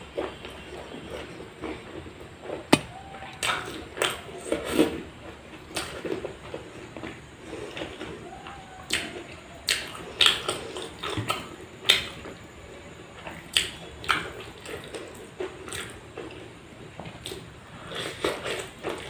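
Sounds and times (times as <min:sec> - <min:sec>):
wet chewing and lip smacking: 0:13.3 - 0:16.4.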